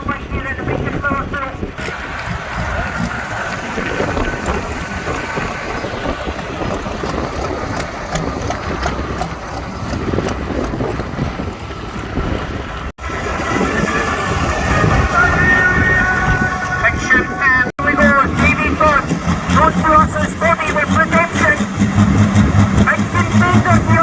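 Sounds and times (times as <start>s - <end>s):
wind buffeting microphone: 0.0s - 24.0s
tractor engine running rough: 1.8s - 11.9s, 12.7s - 24.0s.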